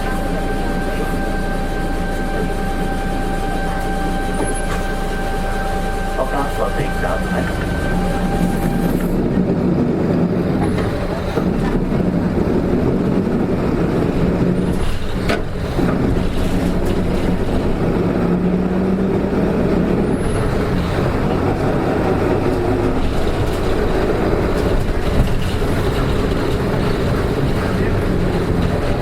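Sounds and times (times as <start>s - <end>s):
bus engine humming: 0.0s - 29.0s.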